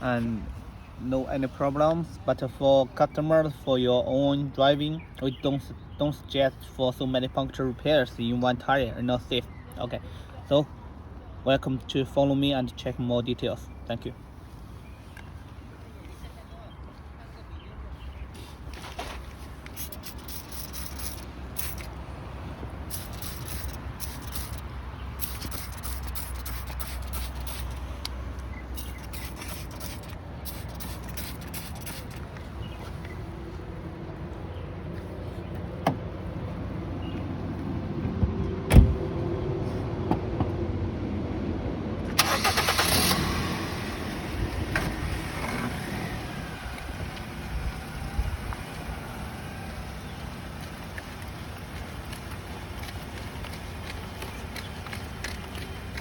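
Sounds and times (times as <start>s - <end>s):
car engine rumble: 14.1s - 56.0s.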